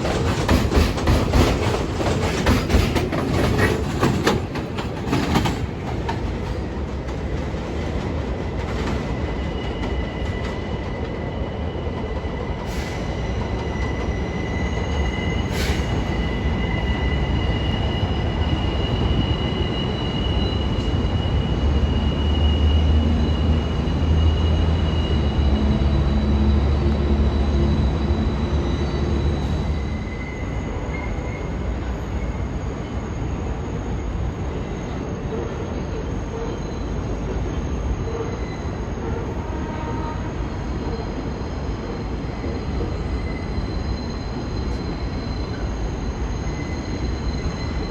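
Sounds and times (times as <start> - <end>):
train wheels rumbling on rail: 0.0 - 47.9
high wheel squeal: 8.9 - 47.9.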